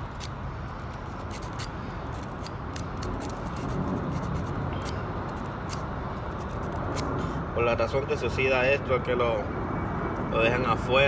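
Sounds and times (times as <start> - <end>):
hand tool scraping and clicking: 0.0 - 7.1
steady background noise: 0.0 - 11.0.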